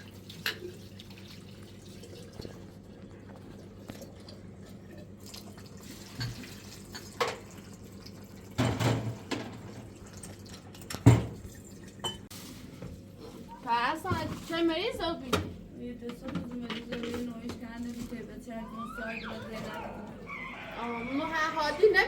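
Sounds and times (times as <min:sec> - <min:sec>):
water dripping and splashing: 0:00.0 - 0:12.0.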